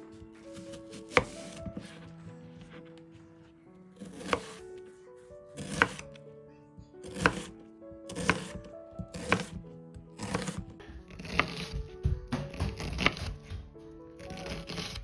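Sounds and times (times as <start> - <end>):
background music: 0.0 - 15.0
knife cutting on chopping board: 0.5 - 2.0, 4.0 - 4.6, 5.6 - 6.1, 7.0 - 7.5, 8.1 - 9.6, 10.2 - 13.6, 14.2 - 15.0.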